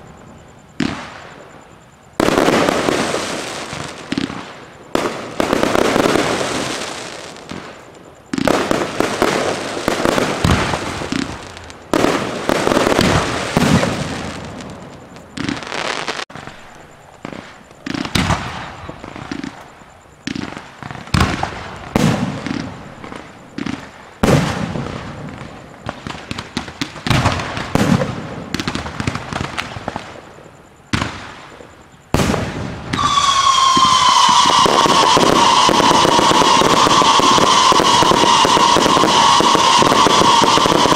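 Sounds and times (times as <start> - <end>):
fireworks shells bursting: 32.3 - 40.9.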